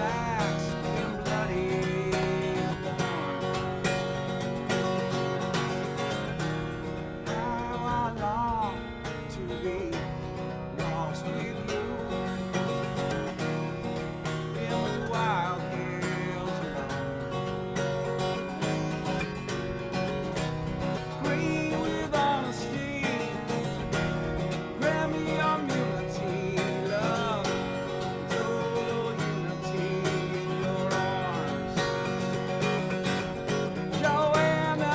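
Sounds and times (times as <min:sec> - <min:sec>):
person singing: 0:00.0 - 0:04.2, 0:21.0 - 0:34.9
acoustic guitar strumming: 0:00.0 - 0:34.9.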